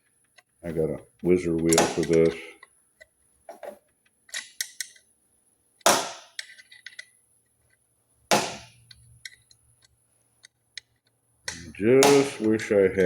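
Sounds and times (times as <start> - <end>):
hand tools clicking and tapping: 1.2 - 3.1.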